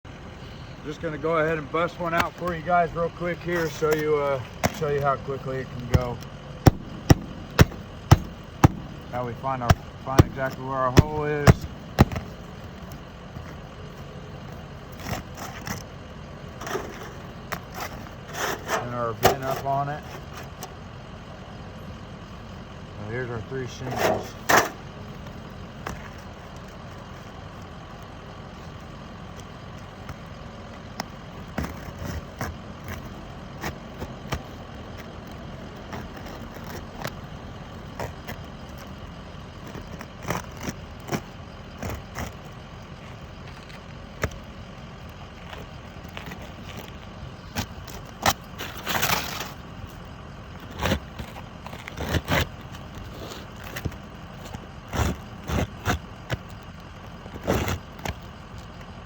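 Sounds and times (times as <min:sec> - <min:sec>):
steady background hum: 0:00.1 - 0:59.0
knocks and taps on roof shingles: 0:03.6 - 0:05.1, 0:05.9 - 0:13.0.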